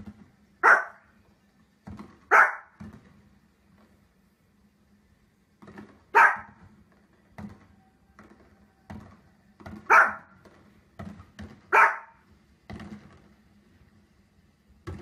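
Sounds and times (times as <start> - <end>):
small dog barking: 0.6 - 1.1, 2.3 - 2.8, 6.1 - 6.6, 9.9 - 10.4, 11.7 - 12.2.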